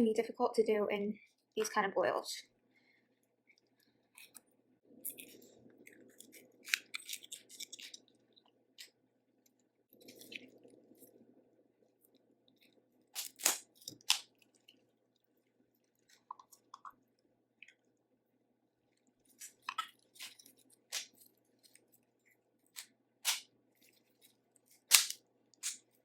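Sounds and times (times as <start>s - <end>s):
sharp snaps: 24.9s - 25.8s.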